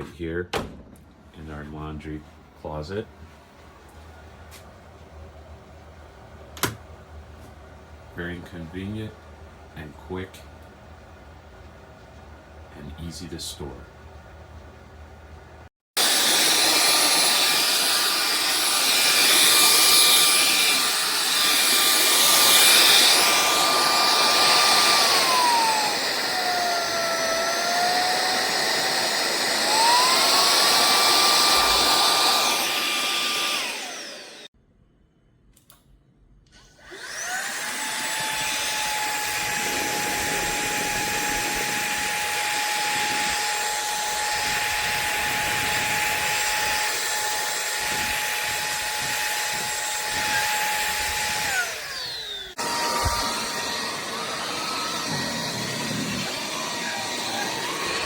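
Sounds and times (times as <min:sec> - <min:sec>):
stick vacuum motor whine: 0:16.0 - 0:34.5, 0:36.6 - 0:58.0.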